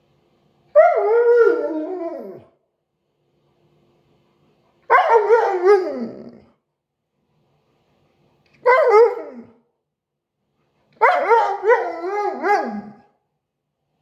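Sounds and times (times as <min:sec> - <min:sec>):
dog howling: 0:00.8 - 0:02.5, 0:04.9 - 0:06.4, 0:08.6 - 0:09.6, 0:11.0 - 0:13.1.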